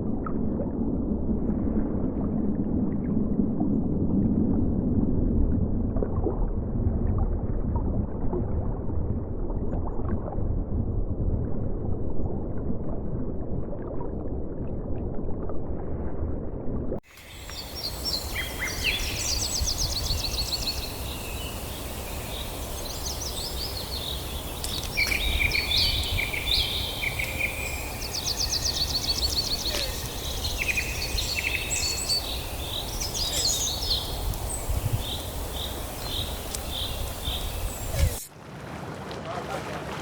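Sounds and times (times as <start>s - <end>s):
songbirds singing: 17.1s - 38.2s.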